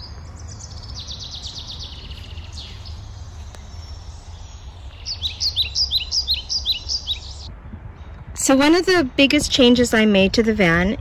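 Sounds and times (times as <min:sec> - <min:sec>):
songbirds trilling: 0:00.0 - 0:07.5
steady low hum: 0:00.0 - 0:08.4.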